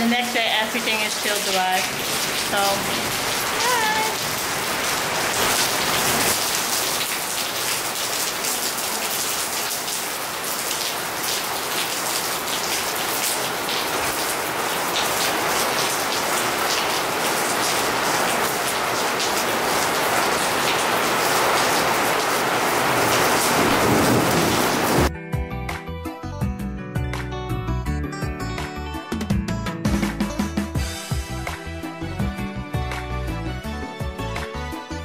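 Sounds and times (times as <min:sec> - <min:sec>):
steady rain: 0:00.0 - 0:25.1.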